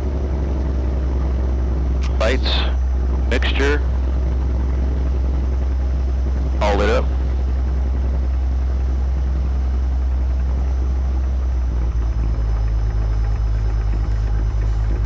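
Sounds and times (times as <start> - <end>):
light aircraft engine humming: 0.0 - 15.0.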